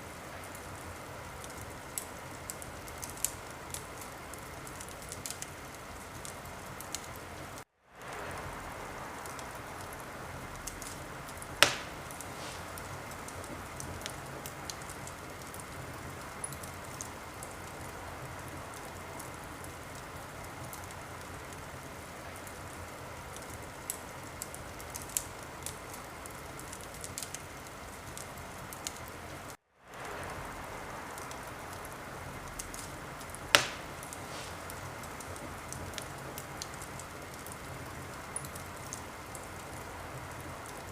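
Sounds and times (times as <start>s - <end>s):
wood fire hissing and crackling: 0.0s - 40.9s
sharp fire pops: 0.4s - 21.7s, 29.9s - 40.9s.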